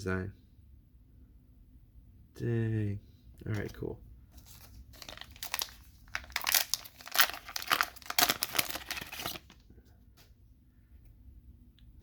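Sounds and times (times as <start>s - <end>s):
wrapper crinkling and tearing: 4.4s - 9.6s.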